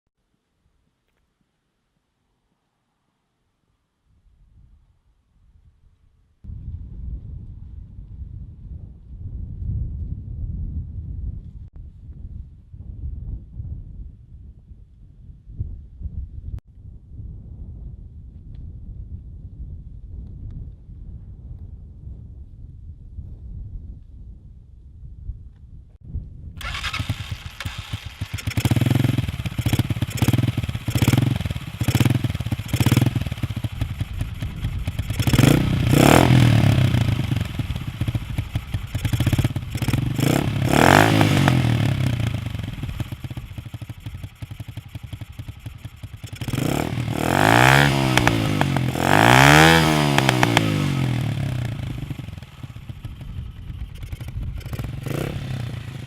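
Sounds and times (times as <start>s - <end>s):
motorcycle engine revving: 26.6s - 56.0s.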